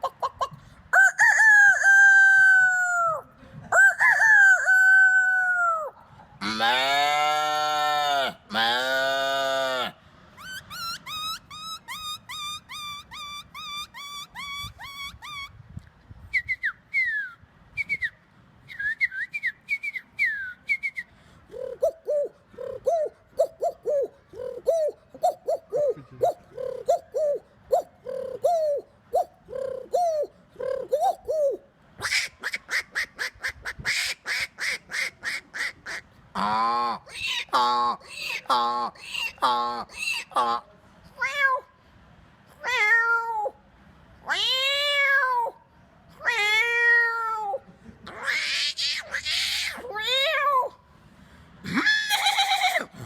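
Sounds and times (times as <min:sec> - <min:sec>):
man imitating duck quacks: 0:25.2 - 0:26.5, 0:34.6 - 0:40.7.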